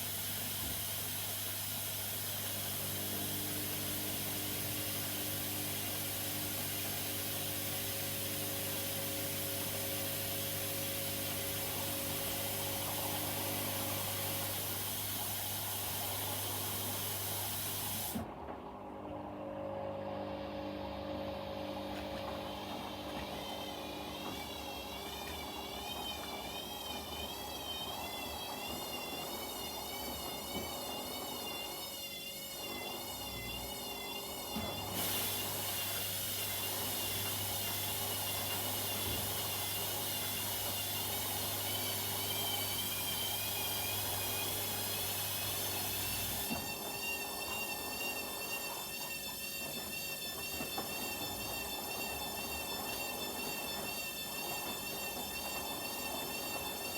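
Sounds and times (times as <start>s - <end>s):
washing machine motor whine: 0.0s - 56.9s.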